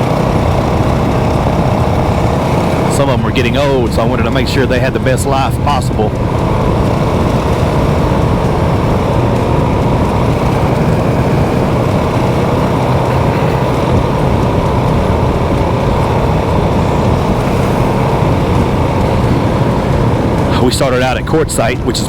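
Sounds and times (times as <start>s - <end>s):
low hum: 0.0s - 22.0s
road noise: 0.0s - 22.0s
vehicle engine drone: 0.0s - 22.0s.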